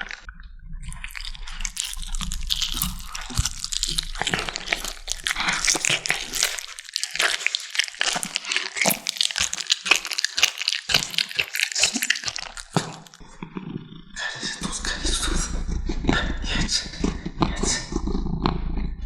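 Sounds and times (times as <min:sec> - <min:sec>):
kittens crunching on bone: 0:00.8 - 0:13.8.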